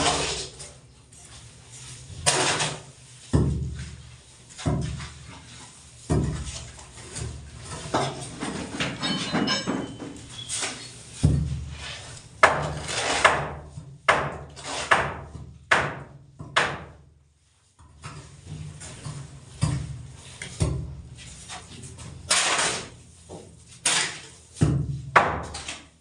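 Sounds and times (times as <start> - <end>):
hammering on wood: 12.4 - 17.0.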